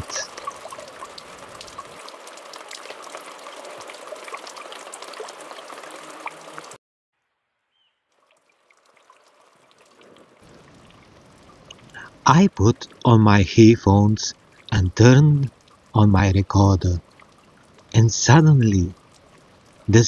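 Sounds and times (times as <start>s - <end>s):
water trickling down rock: 0.0s - 6.8s, 8.1s - 13.2s, 14.3s - 16.0s, 17.0s - 18.0s, 18.7s - 20.0s.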